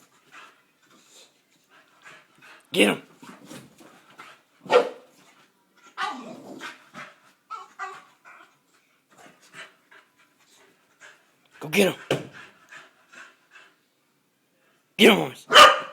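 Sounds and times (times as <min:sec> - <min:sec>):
dog grunting and panting: 0:00.2 - 0:04.6, 0:05.8 - 0:13.8
dog yelping: 0:06.0 - 0:06.3, 0:15.5 - 0:15.9.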